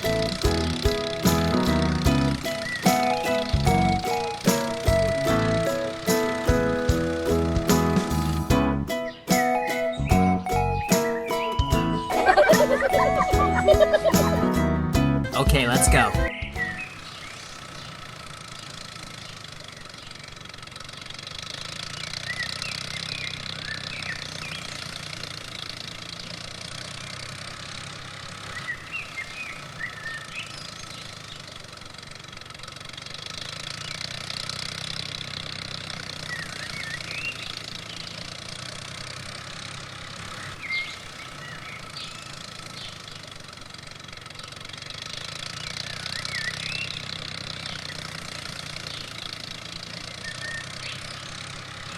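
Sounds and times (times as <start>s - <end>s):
short high chirps: 0.0s - 6.5s, 9.1s - 14.7s
small engine running: 0.0s - 51.9s.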